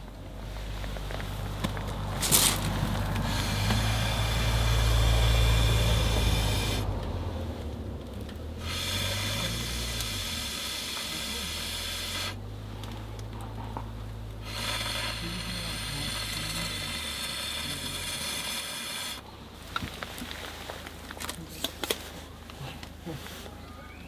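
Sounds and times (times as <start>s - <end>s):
fire hissing: 0.4s - 6.9s, 8.6s - 12.4s, 14.4s - 21.0s.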